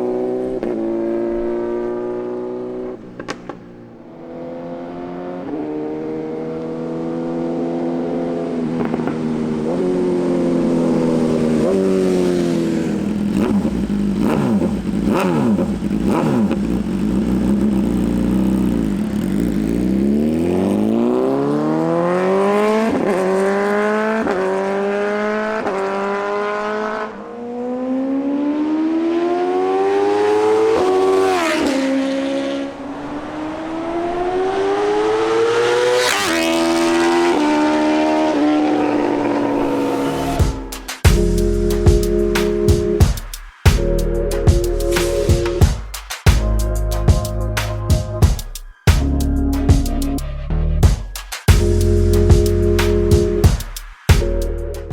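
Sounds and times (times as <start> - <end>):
motorcycle engine accelerating: 0.0 - 54.9
exhaust cracks: 2.7 - 4.2, 8.6 - 21.4.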